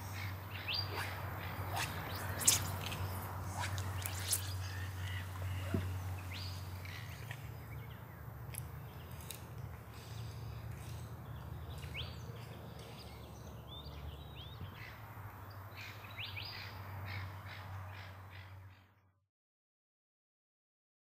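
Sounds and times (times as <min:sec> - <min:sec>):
bird calls: 0:00.0 - 0:15.0.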